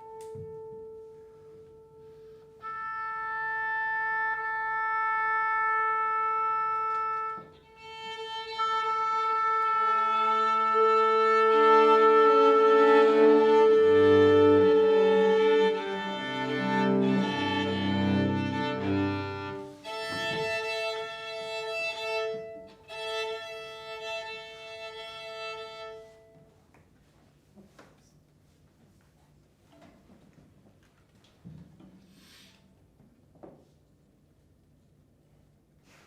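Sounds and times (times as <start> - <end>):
chamber ensemble long held notes: 0.0 - 26.1.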